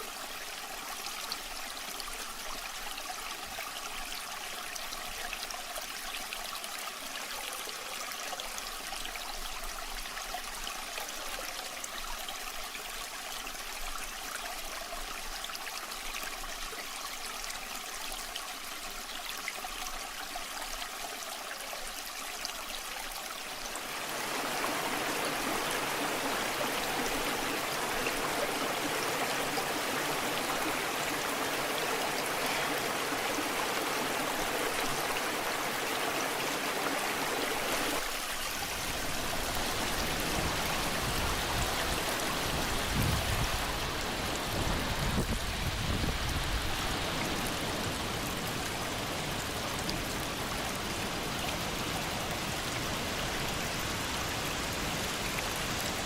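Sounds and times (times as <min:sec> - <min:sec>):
waterfall rushing and splashing: 0:23.4 - 0:56.0.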